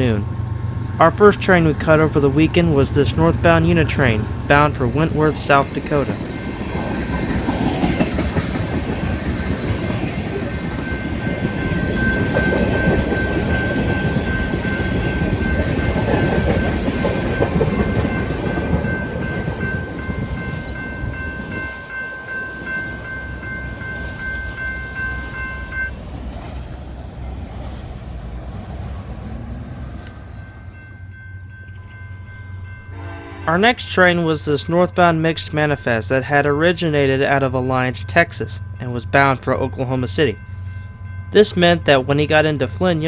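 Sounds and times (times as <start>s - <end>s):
train wheels rumbling on rails: 0.0s - 43.0s
steady high tone: 1.0s - 26.0s.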